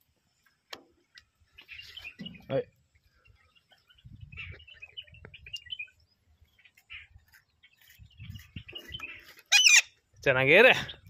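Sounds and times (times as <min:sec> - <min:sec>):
parrot chirping: 0:09.0 - 0:09.9
loud sharp parrot call: 0:09.5 - 0:09.9.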